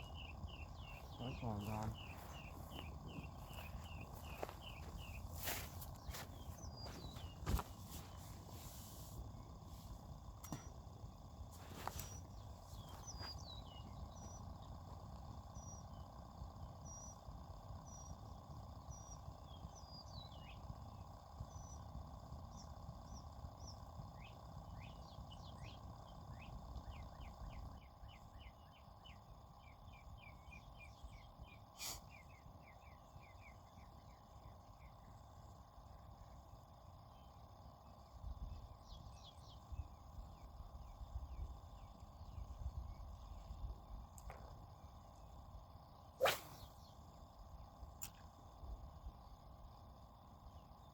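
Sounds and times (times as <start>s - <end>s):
birds singing faintly: 0.0s - 50.9s
low steady background: 0.0s - 50.9s.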